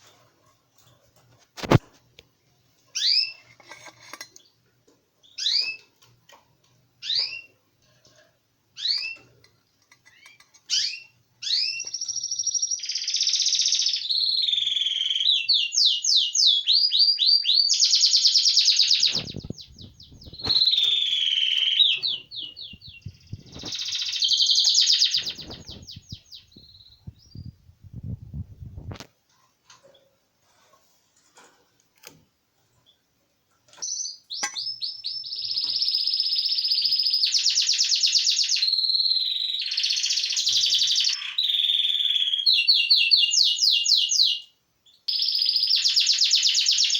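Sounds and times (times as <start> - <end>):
songbird chirping and trilling: 2.9 - 3.6, 5.2 - 6.0, 8.8 - 27.7, 33.7 - 46.9.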